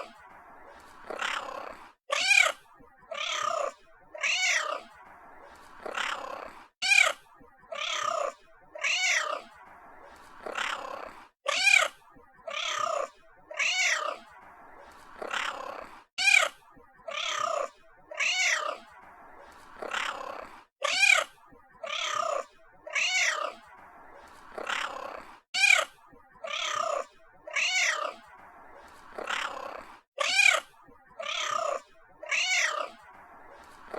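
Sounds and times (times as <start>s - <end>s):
cat meowing: 1.1s - 4.9s, 5.8s - 9.5s, 10.4s - 11.9s, 12.5s - 14.2s, 15.2s - 16.5s, 17.1s - 18.8s, 19.8s - 23.6s, 24.6s - 28.2s, 29.2s - 33.0s.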